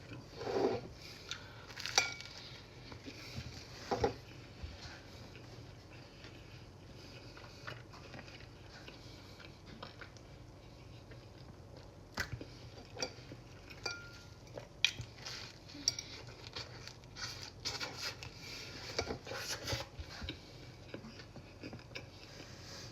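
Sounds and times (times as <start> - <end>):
tableware clinking: 13.8 - 14.2.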